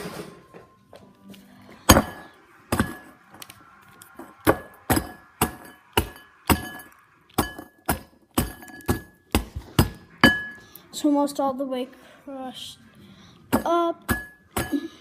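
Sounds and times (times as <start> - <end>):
cereal pounded in a bowl: 1.9 - 10.4.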